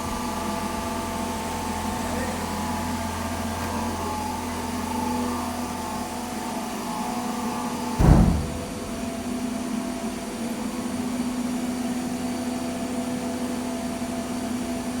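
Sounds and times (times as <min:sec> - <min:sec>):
short low thump: 0:08.0 - 0:09.5.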